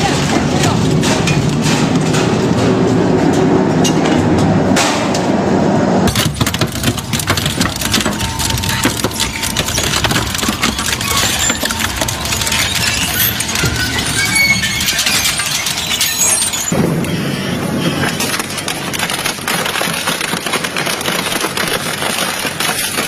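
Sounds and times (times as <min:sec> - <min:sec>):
crushing machine grinding: 0:06.1 - 0:23.0.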